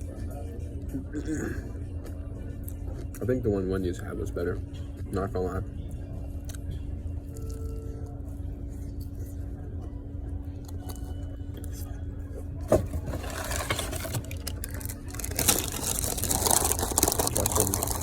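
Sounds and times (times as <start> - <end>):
paper packaging crinkling: 12.7 - 18.0.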